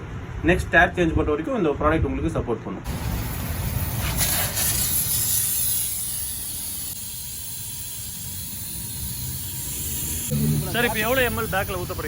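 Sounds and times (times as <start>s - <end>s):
air hissing out of tyre: 2.9s - 12.0s.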